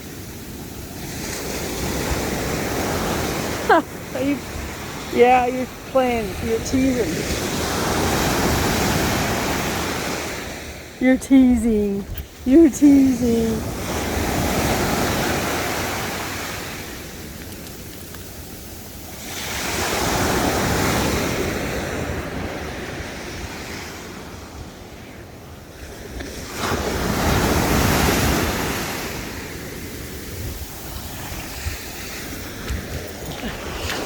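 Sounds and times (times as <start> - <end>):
ocean surf breaking: 1.0 - 11.0
wind buffeting microphone: 29.5 - 34.0.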